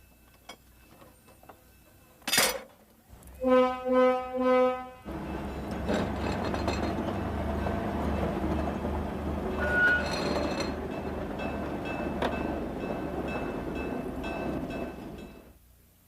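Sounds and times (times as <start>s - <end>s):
locomotive engine droning: 3.2s - 15.6s.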